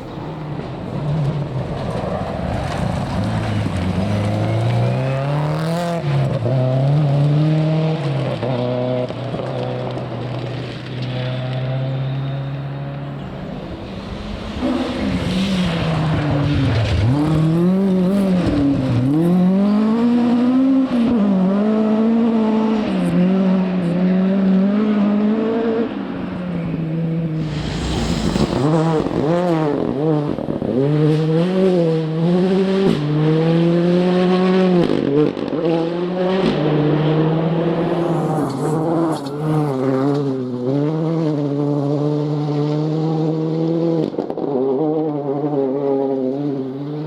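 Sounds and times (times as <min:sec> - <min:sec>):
rally car engine revving: 0:00.5 - 0:47.0
short burst of noise: 0:27.3 - 0:29.4.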